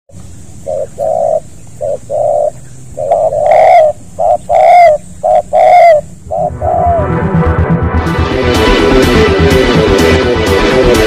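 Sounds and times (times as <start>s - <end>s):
dove cooing: 0.4s - 7.2s.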